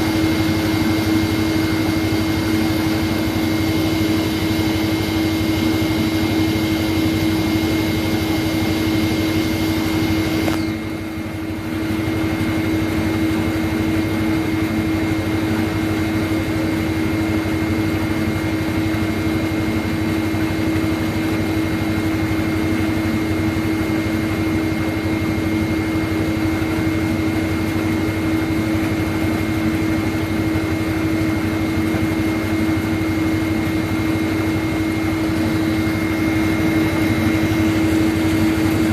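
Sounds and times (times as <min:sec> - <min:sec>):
machine humming: 0:00.0 - 0:38.9.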